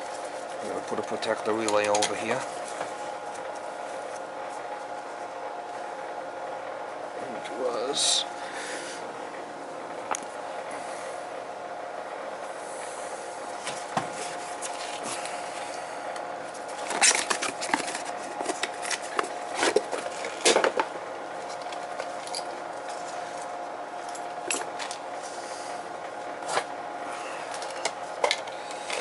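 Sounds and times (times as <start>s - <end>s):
steady hum: 0.0s - 29.0s
clatter of tools and small parts: 16.8s - 20.8s.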